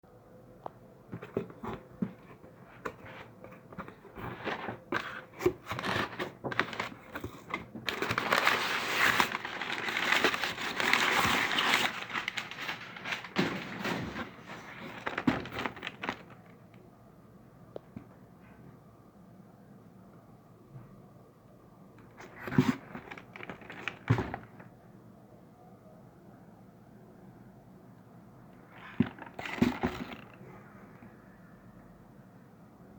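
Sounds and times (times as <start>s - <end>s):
packaging rustling and crinkling: 1.1s - 16.6s, 22.0s - 24.7s, 28.6s - 30.4s.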